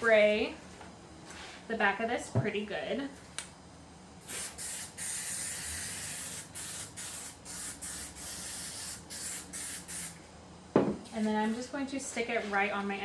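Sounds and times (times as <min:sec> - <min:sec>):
aerosol can spraying hiss: 0:04.2 - 0:10.1.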